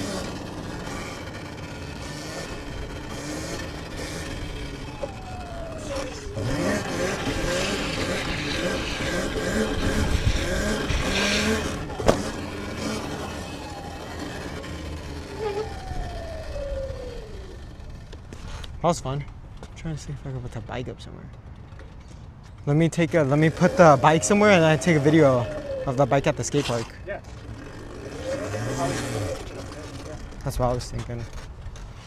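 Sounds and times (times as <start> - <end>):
electric dirt bike motor whine: 0.0 - 18.8, 23.0 - 30.6.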